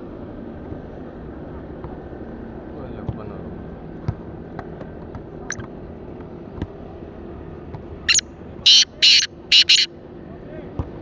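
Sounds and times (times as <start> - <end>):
low background hum: 0.0 - 11.0
bird harsh grating call: 8.1 - 9.9.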